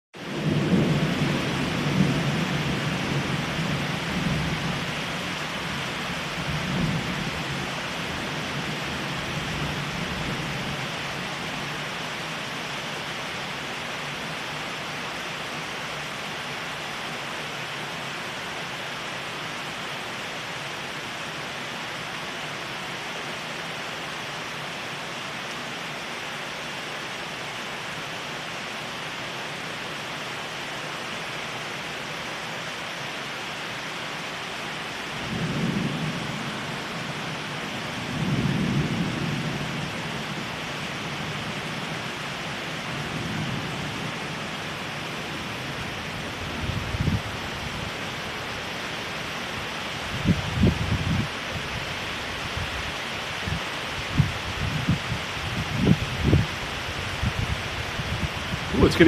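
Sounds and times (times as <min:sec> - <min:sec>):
low rumble of thunder: 0:00.2 - 0:11.8, 0:35.2 - 0:48.4, 0:50.0 - 0:51.8, 0:53.4 - 0:59.0
heavy rain: 0:00.2 - 0:59.0.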